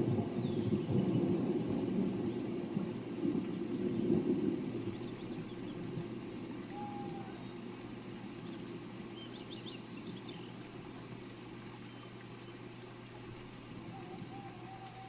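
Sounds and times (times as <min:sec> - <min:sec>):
steady rain: 0:00.0 - 0:15.0
whistled bird note: 0:06.7 - 0:07.6.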